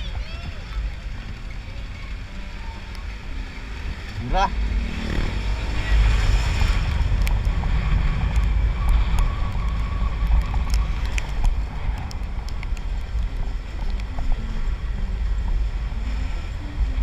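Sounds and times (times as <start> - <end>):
tyres on road: 0.0 - 17.0
wind buffeting microphone: 0.0 - 17.0.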